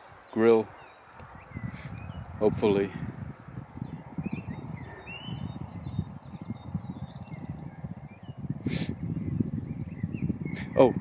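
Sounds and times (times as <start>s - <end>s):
birds chirping and calling: 0.0s - 11.0s
wind buffeting microphone: 0.0s - 11.0s.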